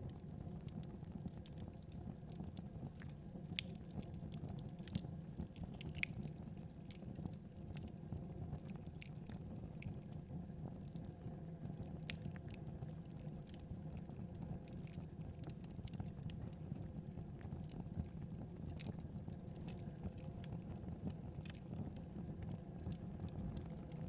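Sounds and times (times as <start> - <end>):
wood fire crackling: 0.1 - 24.0.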